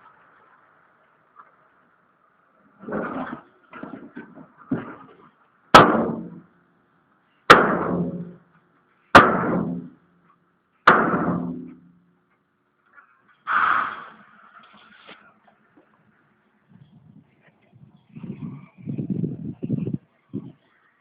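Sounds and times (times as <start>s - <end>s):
metal clangs on truck body: 2.8s - 6.5s, 7.5s - 8.5s, 9.2s - 12.1s.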